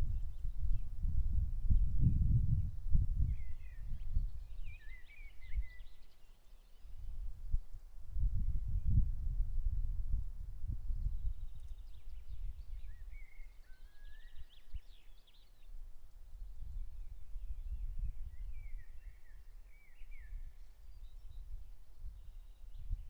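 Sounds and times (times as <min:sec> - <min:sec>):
songbirds singing: 0:01.7 - 0:08.0, 0:10.9 - 0:23.0.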